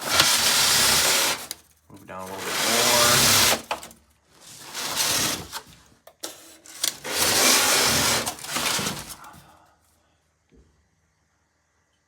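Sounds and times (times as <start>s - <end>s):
object scraping along shelf: 0.0s - 9.4s.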